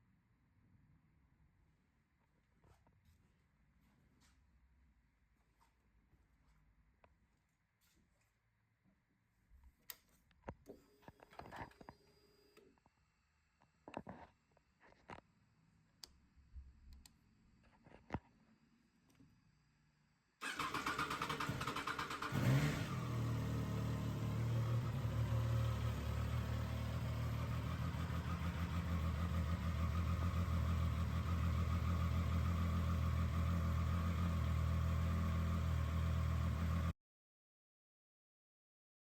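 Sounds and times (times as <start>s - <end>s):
motorcycle engine starting and idling: 20.4s - 36.9s.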